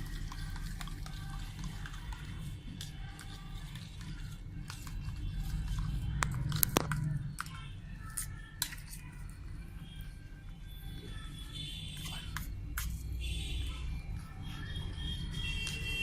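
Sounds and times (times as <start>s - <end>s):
whisk clinking against bowl: 0.0s - 6.4s
whisk beating eggs in bowl: 0.0s - 9.9s.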